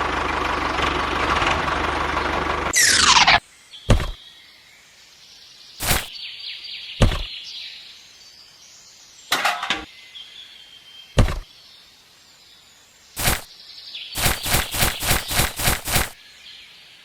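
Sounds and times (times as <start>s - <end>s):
sharp knocks: 3.9s - 4.2s, 7.0s - 7.3s, 11.2s - 11.4s
high chirping: 13.2s - 13.5s, 14.2s - 16.2s.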